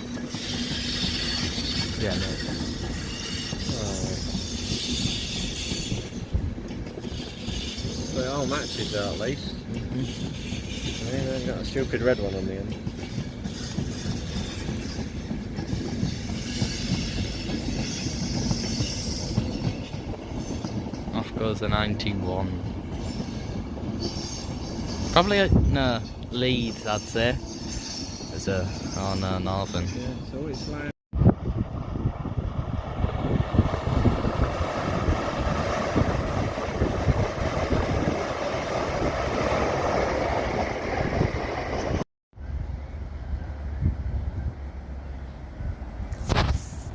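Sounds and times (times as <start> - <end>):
wheels squealing on track: 0.0 - 6.4, 7.0 - 21.0, 23.0 - 30.9
train wheels rumbling on rails: 0.0 - 46.9.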